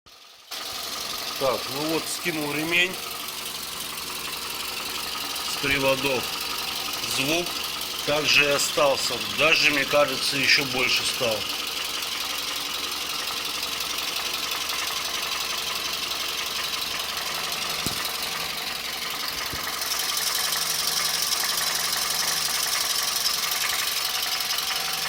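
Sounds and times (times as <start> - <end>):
car engine idling: 0.1 - 25.0
metallic engine knock: 11.5 - 20.7.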